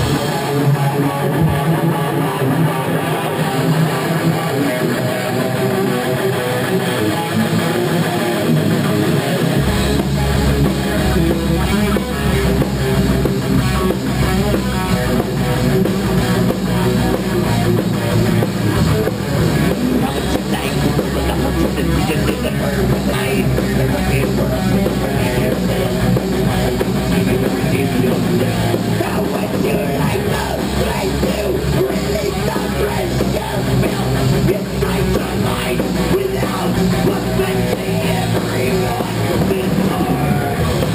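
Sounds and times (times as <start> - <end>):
electric guitar: 0.0 - 40.9
heavy bass: 0.0 - 40.9
live rock band: 0.0 - 40.9.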